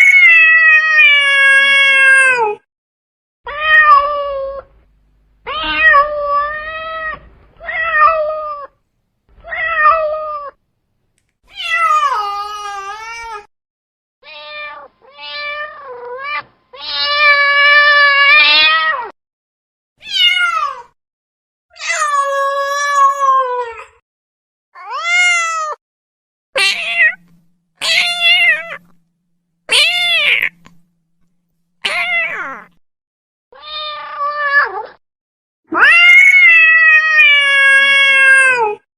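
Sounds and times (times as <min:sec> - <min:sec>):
cat meowing: 0:03.5 - 0:04.7, 0:05.4 - 0:08.8, 0:14.2 - 0:19.1, 0:20.0 - 0:20.9, 0:26.6 - 0:29.0, 0:29.7 - 0:30.9, 0:31.8 - 0:32.8, 0:33.6 - 0:35.0, 0:35.7 - 0:38.8.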